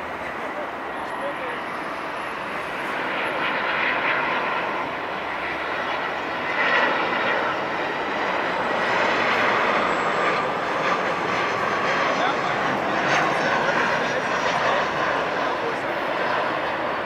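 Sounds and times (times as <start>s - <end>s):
jet engines rushing with whine: 0.0s - 17.0s.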